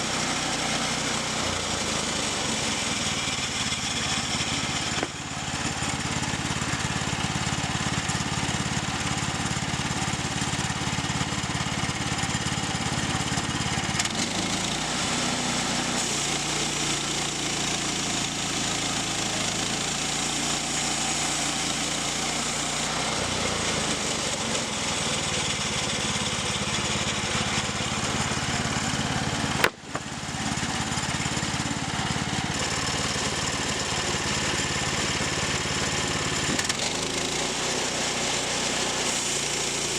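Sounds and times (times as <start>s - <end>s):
small saw engine running: 0.0s - 39.9s
sharp crack: 29.6s - 30.2s.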